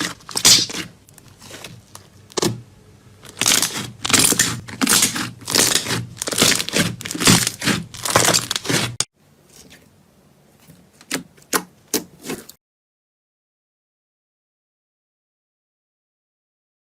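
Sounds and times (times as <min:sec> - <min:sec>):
crunchy slime crackling and popping: 0:00.0 - 0:02.6, 0:03.2 - 0:09.1.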